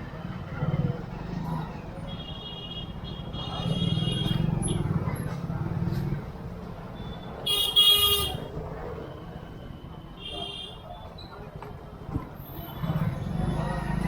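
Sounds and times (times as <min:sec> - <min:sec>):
car horn honks: 0:07.5 - 0:08.4.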